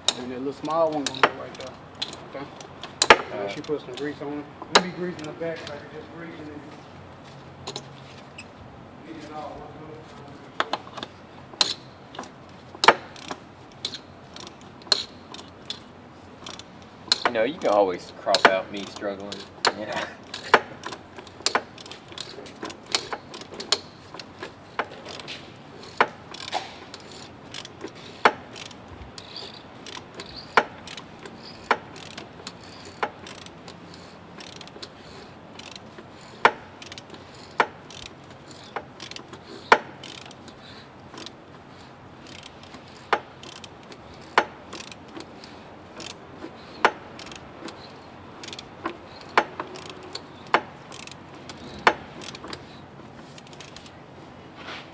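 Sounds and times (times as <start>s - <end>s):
metal hand tools clicking: 11.6s - 53.9s.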